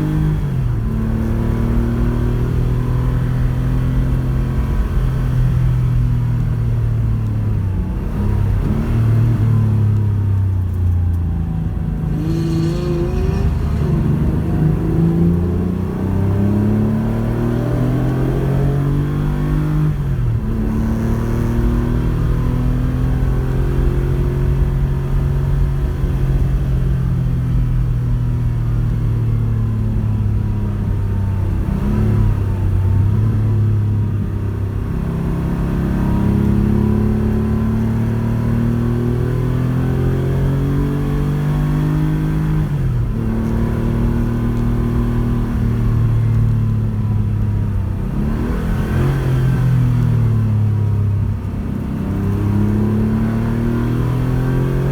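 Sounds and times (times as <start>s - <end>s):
rally car engine revving: 11.3s - 27.4s, 28.5s - 54.9s.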